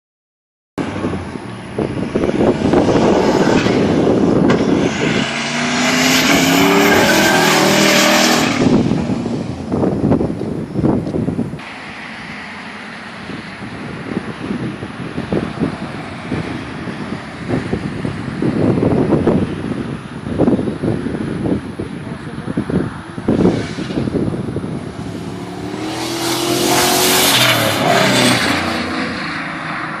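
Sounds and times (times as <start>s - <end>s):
wind noise: 0.8s - 12.4s, 13.0s - 30.0s
car accelerating past: 2.3s - 9.4s, 23.4s - 30.0s.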